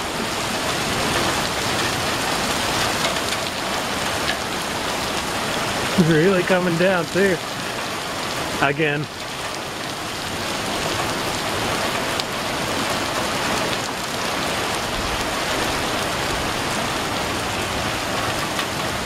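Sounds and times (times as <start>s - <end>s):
heavy rain on pavement: 0.0s - 19.0s
raindrop ticks: 2.8s - 5.3s, 18.2s - 18.8s.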